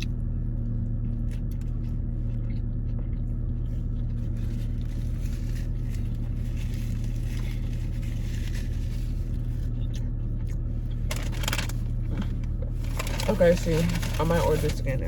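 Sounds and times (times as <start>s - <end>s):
person chewing food: 0.0s - 13.0s
low hum: 0.0s - 15.0s.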